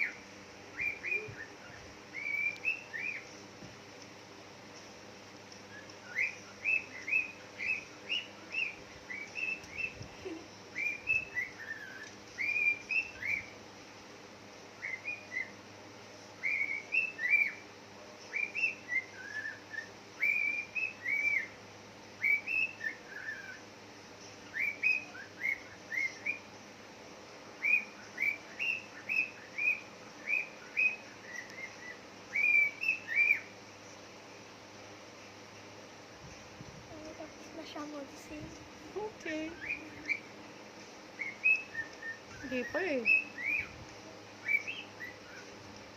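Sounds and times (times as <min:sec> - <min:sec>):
pet bird chirping and whistling: 0:00.0 - 0:03.3, 0:05.7 - 0:10.1, 0:10.7 - 0:13.6, 0:14.8 - 0:15.6, 0:16.4 - 0:17.6, 0:18.3 - 0:21.6, 0:22.2 - 0:23.6, 0:24.4 - 0:26.5, 0:27.6 - 0:33.5, 0:39.2 - 0:40.3, 0:41.2 - 0:43.8, 0:44.4 - 0:45.5.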